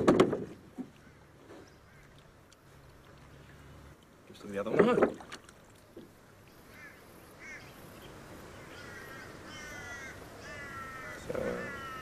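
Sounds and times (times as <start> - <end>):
birds calling harshly: 0.9 - 2.4, 6.5 - 12.0.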